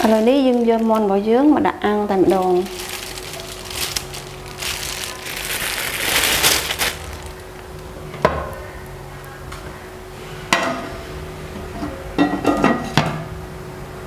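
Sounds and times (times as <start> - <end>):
dry rustling: 0.0 - 9.0
faint steady hum: 0.0 - 14.0.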